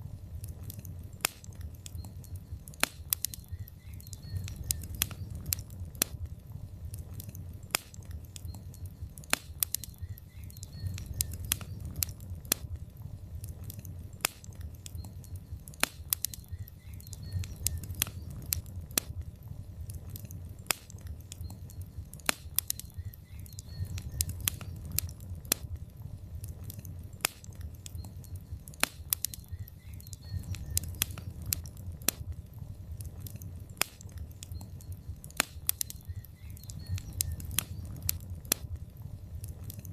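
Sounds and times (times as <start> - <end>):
fire crackling and popping: 0.0 - 39.9
low rumble of fire: 0.0 - 39.9.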